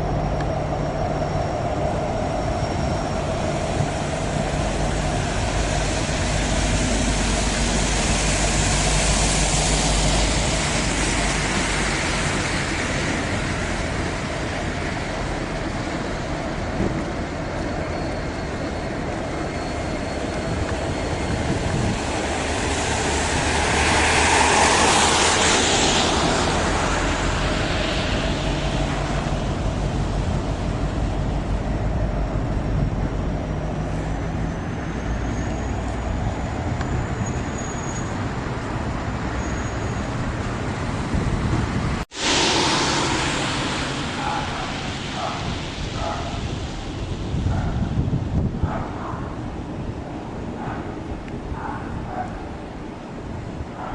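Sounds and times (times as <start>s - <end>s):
train wagons rumbling on rails: 0.0s - 53.9s.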